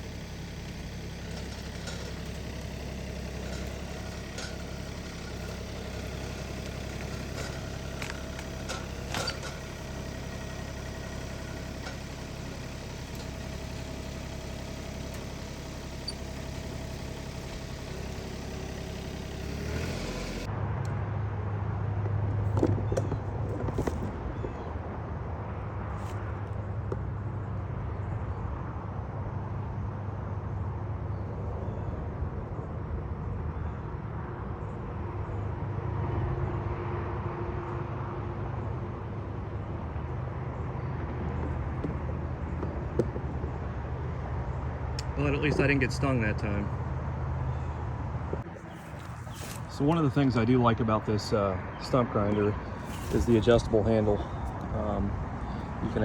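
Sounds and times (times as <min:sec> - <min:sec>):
metal clanks: 0:00.0 - 0:20.5
tractor engine running: 0:00.0 - 0:21.0, 0:21.7 - 0:56.0
deep loud engine drone: 0:00.0 - 0:56.0.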